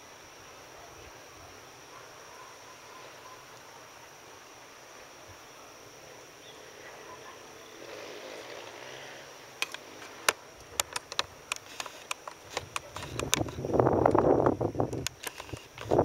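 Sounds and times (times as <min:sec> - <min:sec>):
storm hiss: 0:00.0 - 0:16.0.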